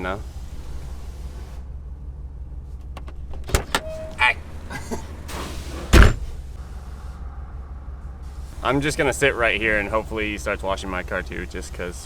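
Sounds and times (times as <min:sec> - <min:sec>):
car engine idling: 0:00.0 - 0:12.0
short squeak: 0:03.5 - 0:04.4
loud thump: 0:05.9 - 0:06.4.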